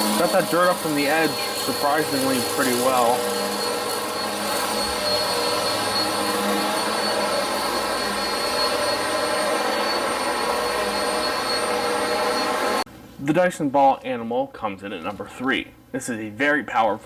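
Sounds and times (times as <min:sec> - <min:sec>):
vacuum cleaner running: 0:00.0 - 0:12.9.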